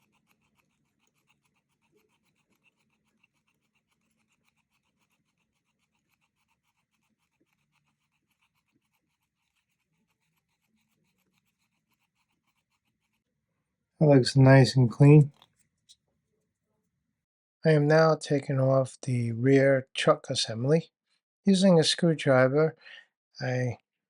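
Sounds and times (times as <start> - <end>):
pen scratching on motor: 0.0 - 13.3.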